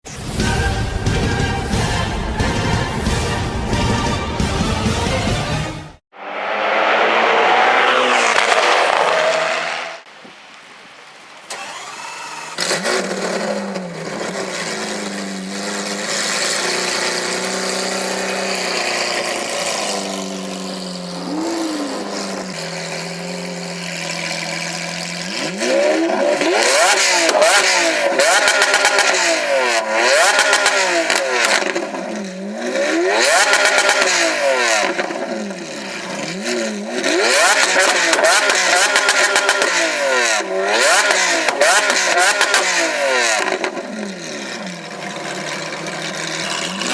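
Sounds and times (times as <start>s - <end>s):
sports car engine idling and revving: 11.5s - 46.9s
exhaust crackles and pops: 41.0s - 46.9s.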